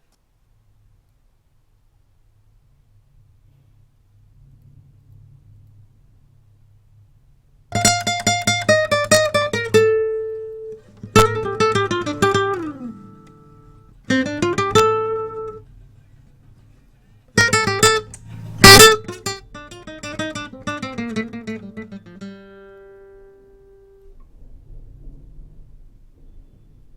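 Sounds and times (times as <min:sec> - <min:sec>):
picked guitar notes: 0:07.8 - 0:15.6, 0:17.4 - 0:23.9
low hum: 0:17.4 - 0:20.2.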